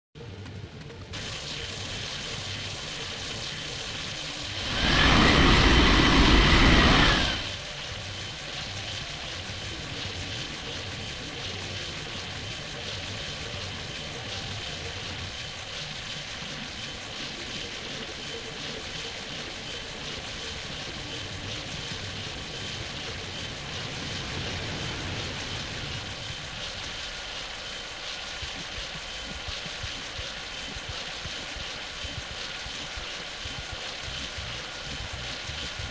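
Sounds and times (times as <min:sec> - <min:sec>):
distant jet engine rumble: 0:00.2 - 0:35.9
loud rush of noise: 0:04.0 - 0:08.1, 0:22.4 - 0:27.5.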